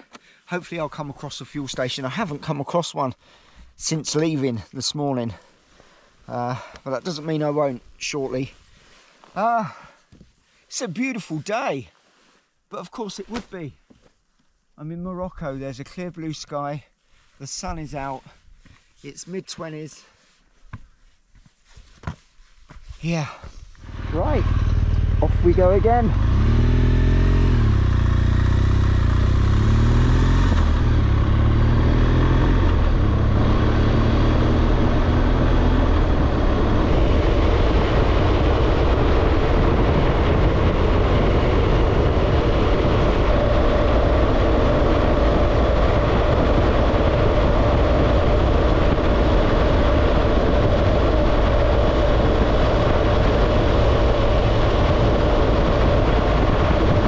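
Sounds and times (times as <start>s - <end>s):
wind rushing over microphone: 23.0s - 57.0s
motorcycle engine pulling away: 23.8s - 57.0s.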